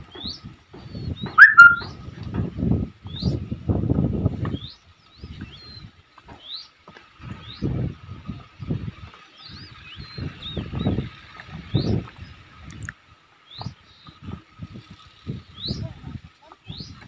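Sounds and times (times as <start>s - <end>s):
bird chirping: 1.2s - 1.9s
squeaky bird call: 1.3s - 1.9s.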